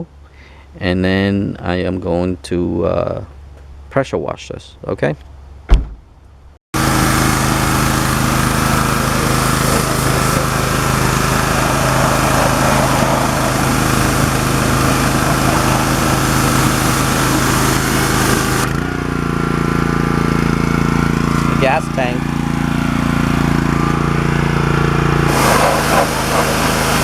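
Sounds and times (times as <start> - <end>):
water spray hiss: 6.8 - 18.7, 25.3 - 27.0
pressure washer motor hum: 6.8 - 27.0.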